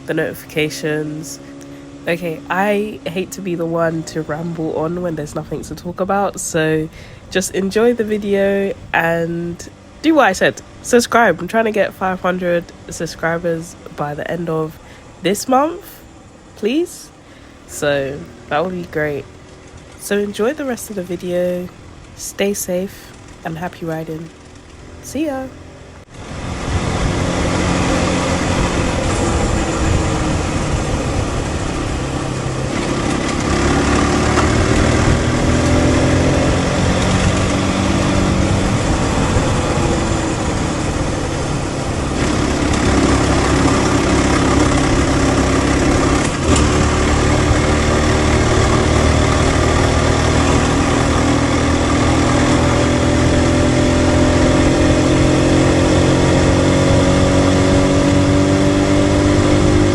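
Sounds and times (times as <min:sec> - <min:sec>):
motorcycle engine pulling: 0:00.0 - 0:59.9
wind rush: 0:26.0 - 0:59.9.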